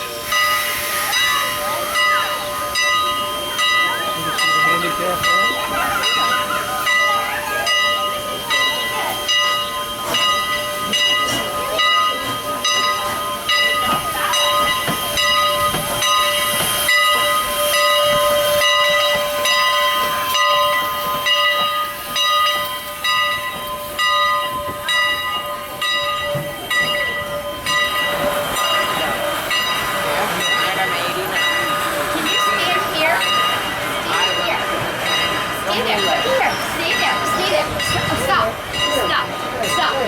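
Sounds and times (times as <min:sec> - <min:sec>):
steam locomotive hissing steam: 0:00.0 - 0:40.0.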